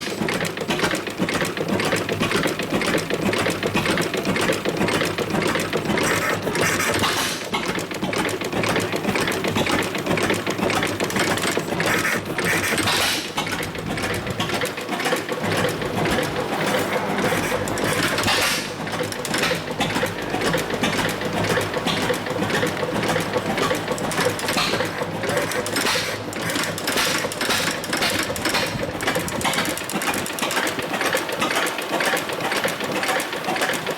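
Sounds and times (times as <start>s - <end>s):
boat engine running: 8.6s - 33.8s.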